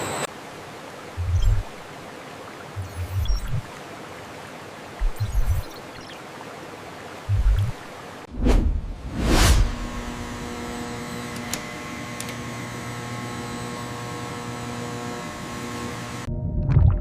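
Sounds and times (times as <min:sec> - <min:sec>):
factory machinery humming: 0:00.0 - 0:00.3
short whoosh: 0:08.3 - 0:10.2.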